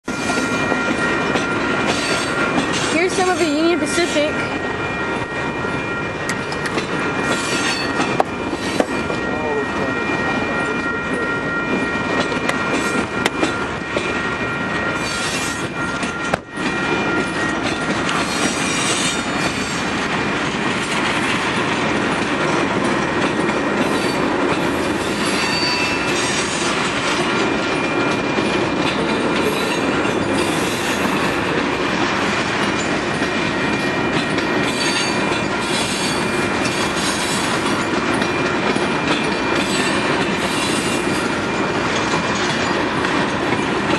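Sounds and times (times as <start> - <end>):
train wheels clattering over rails: 0.0 - 9.3, 11.7 - 43.9
high wheel squeal: 5.6 - 10.5, 14.8 - 19.8, 25.0 - 26.7, 39.5 - 41.5.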